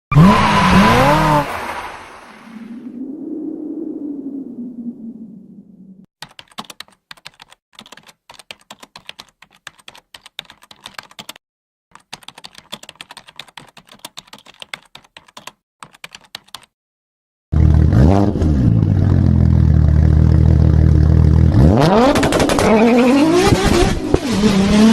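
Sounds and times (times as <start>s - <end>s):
keyboard typing clicks: 6.2s - 16.7s.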